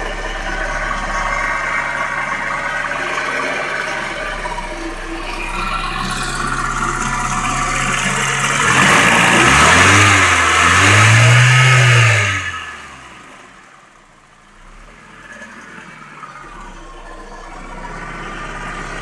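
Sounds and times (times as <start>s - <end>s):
car engine idling: 0.0s - 19.0s
car engine revving: 0.0s - 19.0s.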